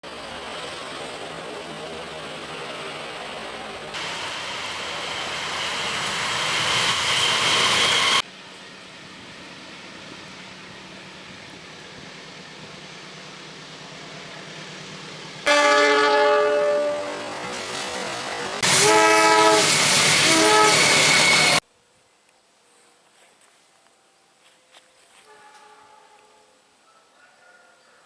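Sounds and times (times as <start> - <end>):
train rumbling past: 0.0 - 21.6
locomotive horn: 15.5 - 17.5, 18.6 - 21.6, 25.2 - 26.6.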